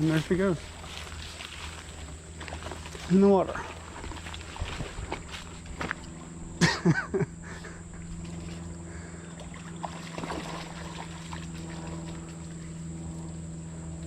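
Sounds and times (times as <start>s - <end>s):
creek trickling: 0.0s - 6.6s, 7.4s - 12.7s
dog splashing in water: 9.4s - 12.4s.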